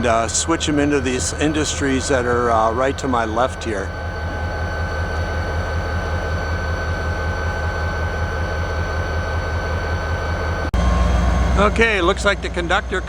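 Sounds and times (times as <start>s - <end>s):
diesel locomotive engine idling: 0.0s - 13.0s
steady high whine: 0.0s - 13.0s.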